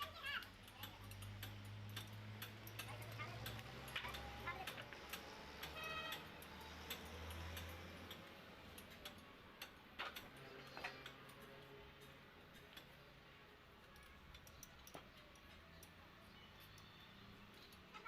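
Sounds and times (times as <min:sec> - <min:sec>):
faint clicks and taps: 0:13.8 - 0:16.0.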